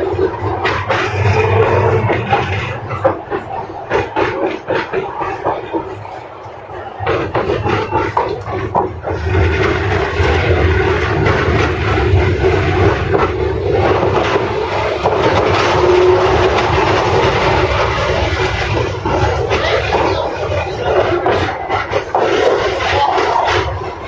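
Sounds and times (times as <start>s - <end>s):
tram wheels rumbling on rails: 0.0s - 24.0s.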